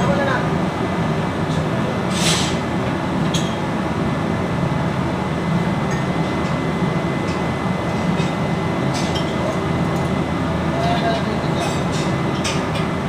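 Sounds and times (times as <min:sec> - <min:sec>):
machinery drone with high whine: 0:00.0 - 0:13.0
short burst of hiss: 0:02.1 - 0:02.6.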